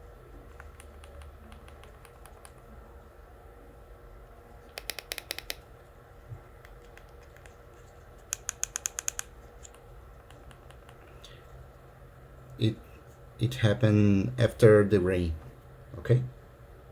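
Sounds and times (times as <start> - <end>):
buttons clicking: 4.7 - 5.6.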